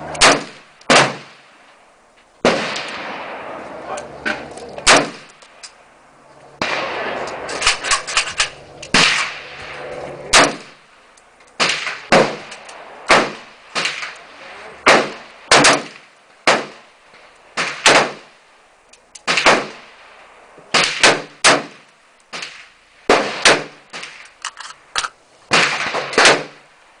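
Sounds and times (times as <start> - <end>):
rifle shots with echo: 0.0 - 1.6, 2.4 - 3.6, 4.8 - 5.4, 6.6 - 10.8, 11.6 - 16.9, 17.6 - 18.3, 19.2 - 20.1, 20.7 - 24.2, 25.5 - 26.6
fainter gunshots: 0.1 - 1.5, 2.4 - 3.6, 4.8 - 5.3, 6.6 - 8.0, 8.9 - 10.8, 11.6 - 16.8, 17.6 - 18.3, 19.2 - 19.9, 20.7 - 21.8, 25.5 - 26.6.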